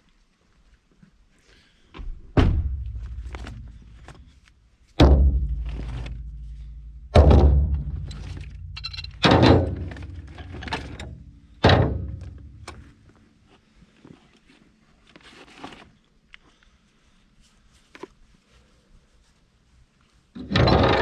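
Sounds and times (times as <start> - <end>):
heavy thunks with rumble: 2.0 - 4.2, 5.0 - 12.7.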